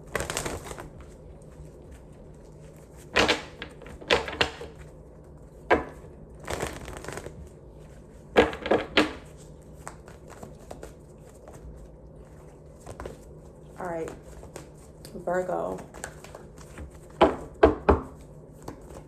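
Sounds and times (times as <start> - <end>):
cards being shuffled: 0.0 - 4.9, 6.0 - 7.5, 8.4 - 11.8, 12.7 - 15.1, 15.7 - 17.5, 18.1 - 19.0.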